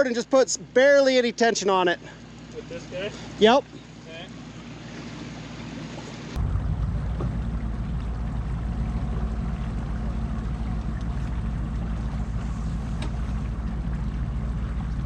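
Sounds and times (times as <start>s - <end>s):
pickup truck engine idling: 6.4s - 15.0s.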